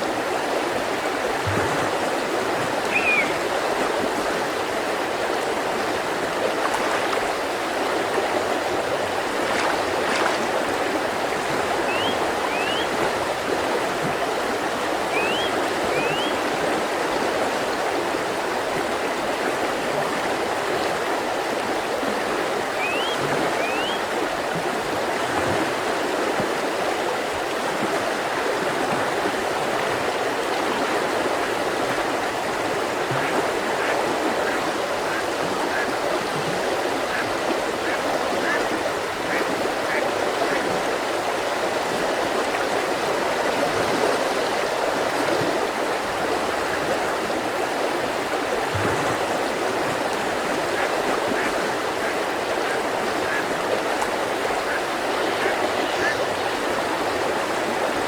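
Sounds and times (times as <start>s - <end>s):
river water rushing: 0.0s - 58.0s
bird whistling rising notes: 2.9s - 3.4s, 11.9s - 12.9s, 15.1s - 16.4s, 22.8s - 24.0s.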